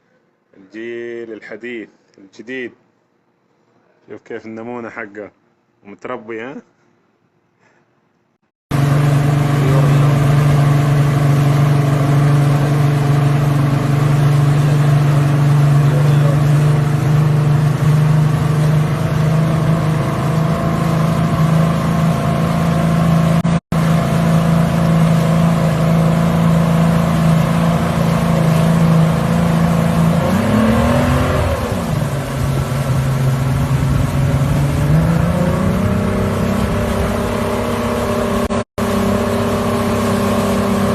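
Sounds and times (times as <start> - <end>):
motorboat engine running: 8.7 - 40.9.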